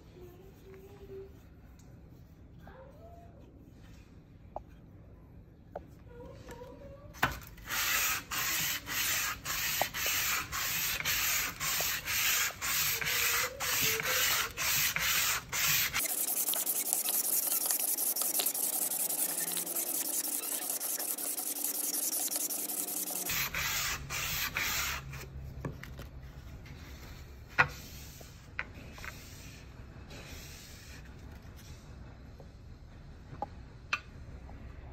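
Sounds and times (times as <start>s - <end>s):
knife sharpening strokes: 13.3s - 23.4s.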